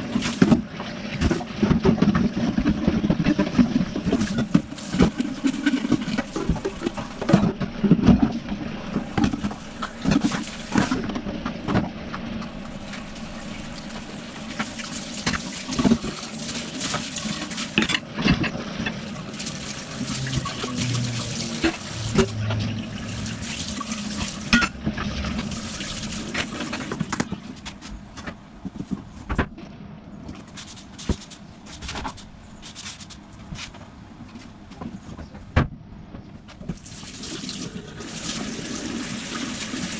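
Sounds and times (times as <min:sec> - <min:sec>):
water running in a sink: 0:00.0 - 0:27.5, 0:36.8 - 0:39.9.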